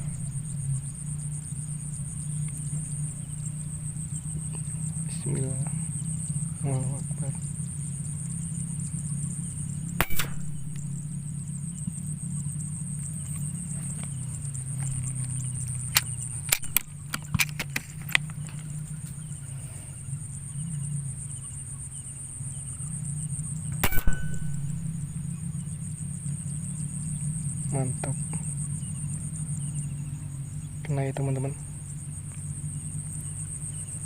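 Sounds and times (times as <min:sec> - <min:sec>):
insects droning: 0:00.0 - 0:34.0
air rifle shots: 0:10.0 - 0:11.2, 0:16.5 - 0:16.9, 0:23.8 - 0:25.1
light clicks: 0:14.8 - 0:18.7.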